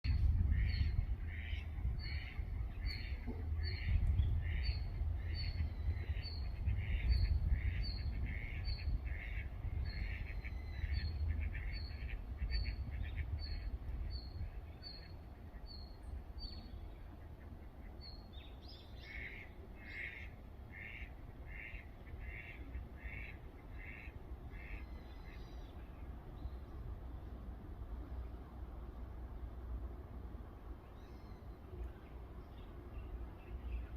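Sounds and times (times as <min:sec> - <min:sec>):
low rumble: 0:00.0 - 0:14.6.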